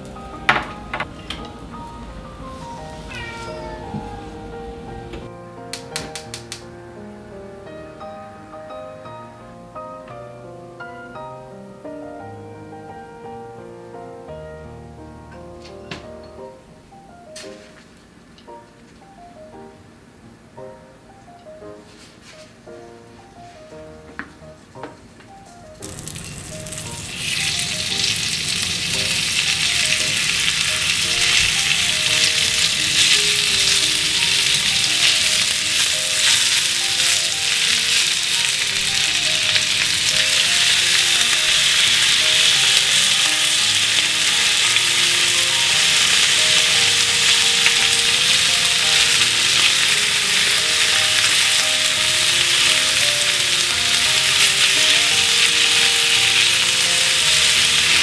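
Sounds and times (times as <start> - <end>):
soft background music: 0.0 - 58.0
pork sizzling in hot oil: 25.8 - 58.0.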